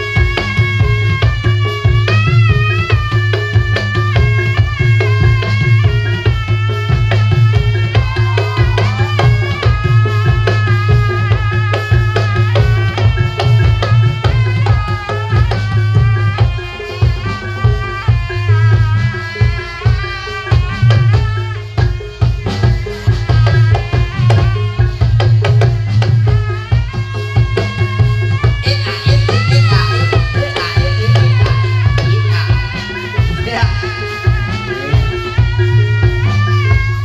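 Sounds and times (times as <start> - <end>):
drums and percussion beating: 0.0 - 37.0
pitch-bending melody line: 26.9 - 37.0.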